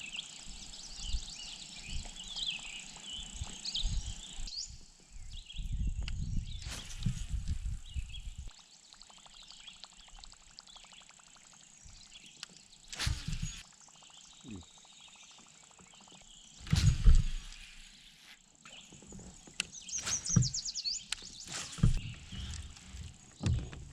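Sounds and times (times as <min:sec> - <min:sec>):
songbirds chirping and trilling: 0:00.0 - 0:23.9
rumbles and knocks near microphone: 0:16.7 - 0:17.6, 0:19.1 - 0:20.6, 0:21.5 - 0:23.9.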